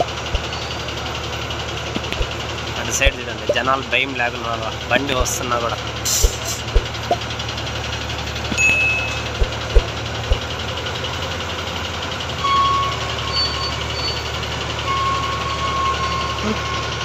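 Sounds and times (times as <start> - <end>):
low thumps: 0.0 - 0.6, 2.0 - 2.4, 6.2 - 7.2, 8.5 - 10.5
heavy diesel engine idling: 0.0 - 17.0.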